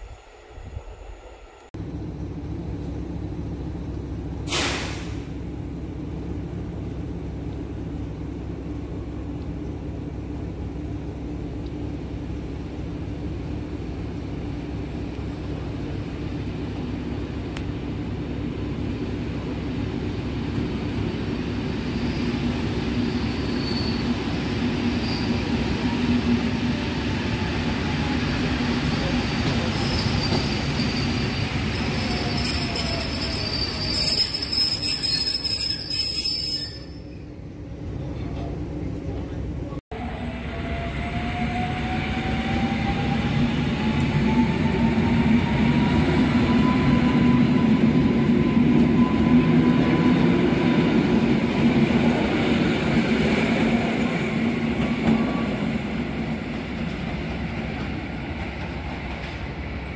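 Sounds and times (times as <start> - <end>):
train rail rumble: 0.0 - 59.9
high wheel squeals: 23.0 - 24.3, 25.0 - 26.0, 28.8 - 37.3.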